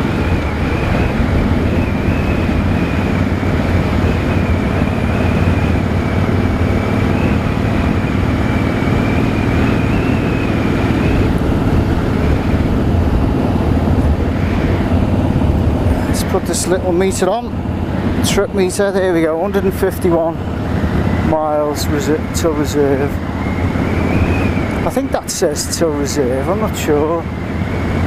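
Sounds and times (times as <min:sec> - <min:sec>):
motorcycle engine running: 0:00.0 - 0:28.0
thin high whistle: 0:09.0 - 0:11.2, 0:23.3 - 0:24.9.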